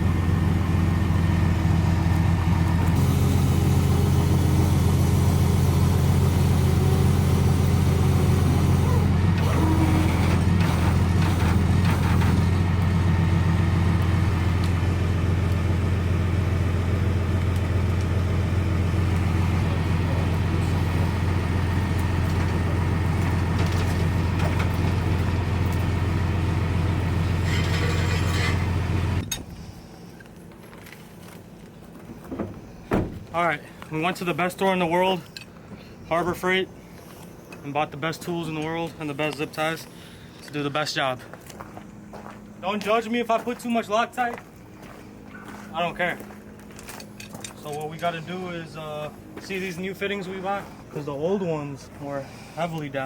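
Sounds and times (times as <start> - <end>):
engine humming: 0.0 - 40.6.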